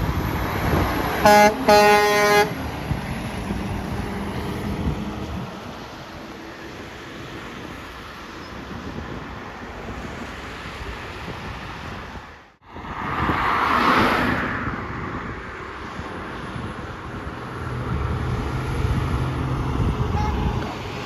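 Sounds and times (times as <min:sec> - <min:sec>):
low engine hum of approaching vehicle: 0:00.0 - 0:07.9, 0:12.9 - 0:21.0
vehicle passing close by: 0:00.0 - 0:08.2, 0:12.7 - 0:21.0
roadside traffic noise: 0:00.0 - 0:21.0.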